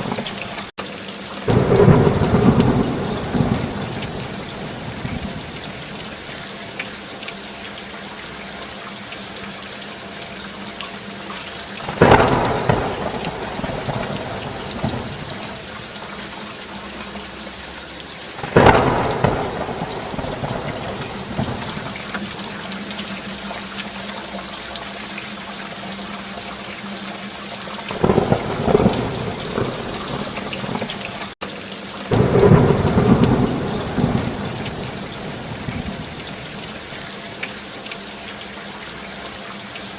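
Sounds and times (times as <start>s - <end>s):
steady rainfall: 0.0s - 39.9s
thunderclaps: 1.5s - 6.1s, 11.8s - 15.9s, 18.4s - 22.8s, 27.9s - 31.4s, 32.1s - 36.9s.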